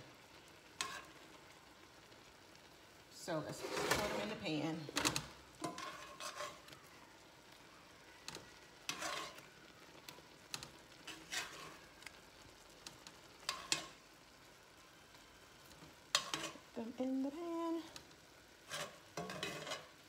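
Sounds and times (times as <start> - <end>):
food sizzling in skillet: 0.0 - 20.0
metal tongs scraping pan: 0.8 - 1.2, 3.5 - 6.6, 8.9 - 9.5, 10.6 - 11.8, 13.4 - 14.0, 16.1 - 16.8, 18.6 - 20.0.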